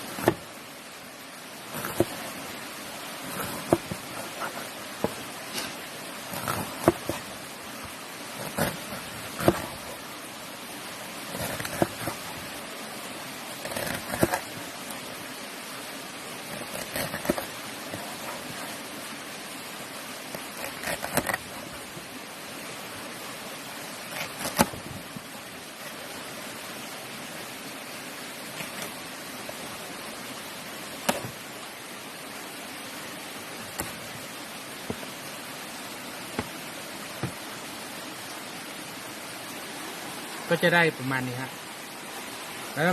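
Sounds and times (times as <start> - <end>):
knife slicing fruit: 0.0 - 0.6, 1.7 - 2.4, 3.2 - 7.4, 8.4 - 10.0, 11.2 - 12.4, 13.5 - 15.0, 16.5 - 18.9, 20.3 - 22.0, 24.0 - 24.9, 28.6 - 29.6, 30.9 - 31.4, 33.7 - 34.1, 36.3 - 37.5
steady rushing hiss: 0.0 - 42.9.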